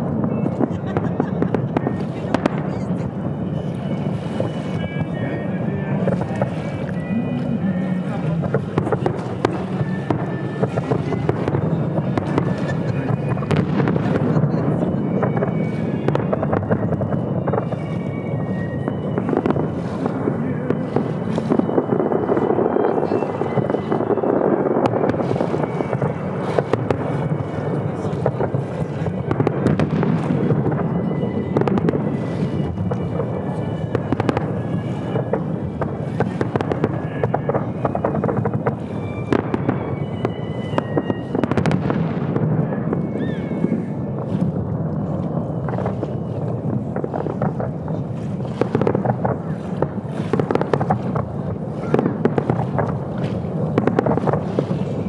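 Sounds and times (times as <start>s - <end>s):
fireworks crackling and popping: 0.0s - 55.0s
wind buffeting microphone: 0.0s - 55.0s.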